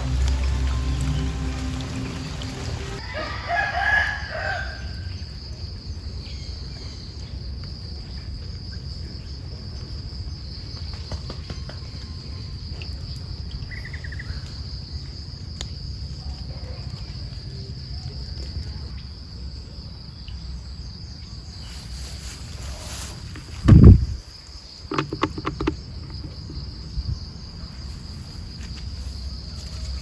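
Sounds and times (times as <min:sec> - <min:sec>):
rooster crowing: 0:01.8 - 0:05.1
high-pitched insect trill: 0:20.9 - 0:30.0.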